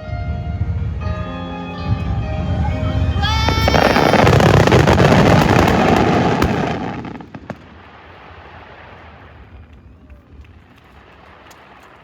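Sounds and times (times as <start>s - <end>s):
fireworks crackles and booms: 3.0s - 12.0s.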